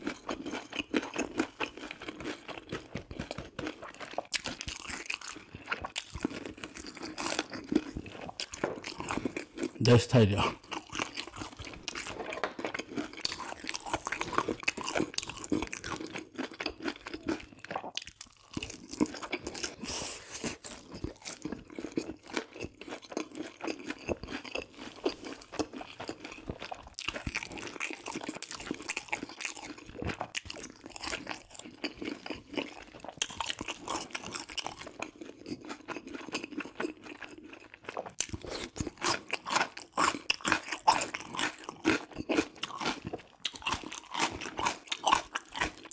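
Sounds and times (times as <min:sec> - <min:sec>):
fried chicken crunching chewing: 0:00.0 - 0:45.9.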